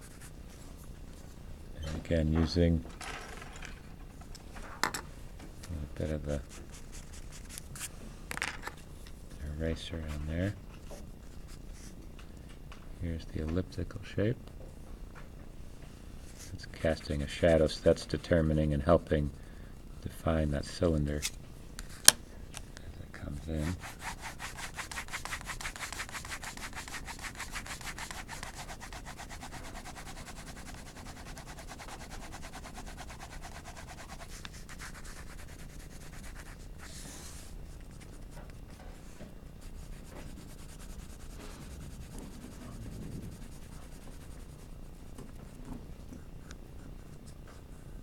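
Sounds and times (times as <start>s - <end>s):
pencil shading on paper: 23.7s - 37.4s, 39.6s - 45.1s.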